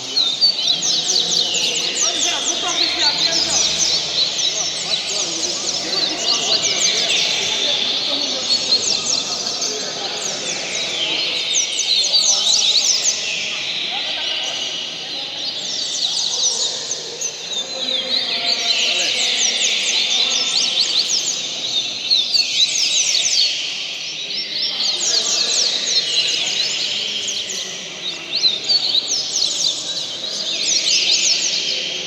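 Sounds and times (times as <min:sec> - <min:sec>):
bird singing high sweeping notes: 0:00.0 - 0:20.5.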